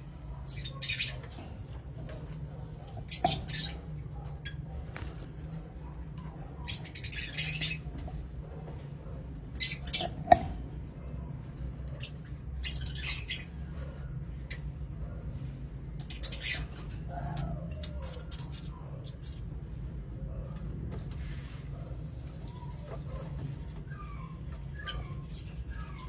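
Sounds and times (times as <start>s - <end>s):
bird squawking and chirping: 0.0s - 2.2s, 2.8s - 8.2s, 9.4s - 10.6s, 11.9s - 14.9s, 15.9s - 19.5s, 22.5s - 26.0s.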